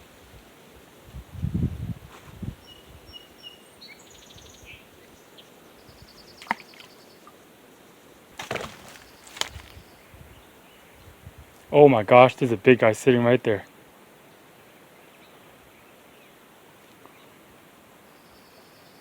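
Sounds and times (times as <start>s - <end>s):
small birds chirping: 2.6s - 11.2s
twig snapping: 8.4s - 9.8s
rustling twigs cracking: 8.4s - 10.0s
footsteps through brush: 8.4s - 10.1s.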